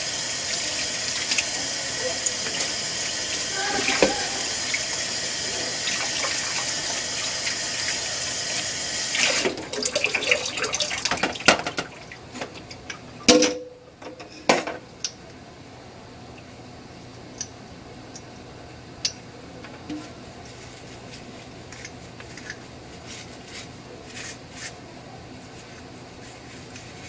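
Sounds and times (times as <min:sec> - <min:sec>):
water running: 0:00.0 - 0:12.9.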